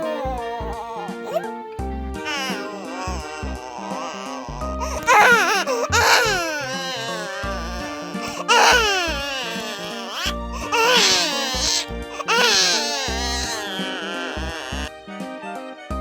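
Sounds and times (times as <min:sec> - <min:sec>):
newborn baby crying: 0:00.0 - 0:01.6, 0:02.2 - 0:14.9
background music with bass: 0:00.2 - 0:02.4, 0:03.1 - 0:06.6, 0:10.3 - 0:10.8.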